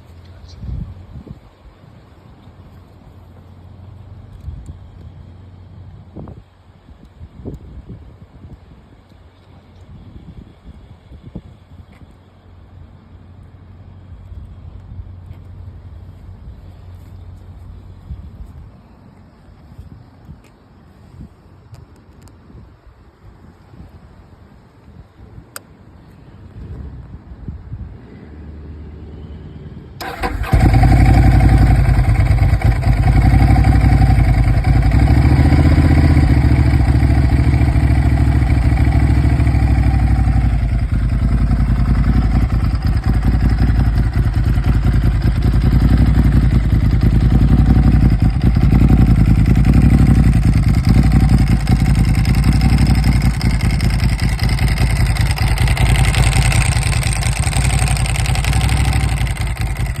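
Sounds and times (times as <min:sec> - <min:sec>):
motorcycle engine cranking and starting: 0:30.0 - 1:00.0.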